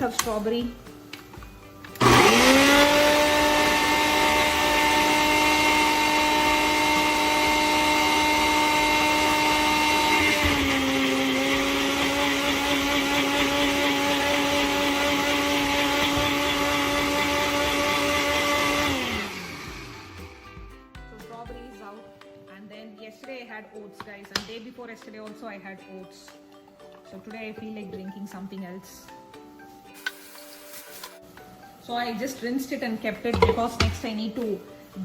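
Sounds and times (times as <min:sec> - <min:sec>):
kitchen blender motor whining: 0:01.9 - 0:20.7.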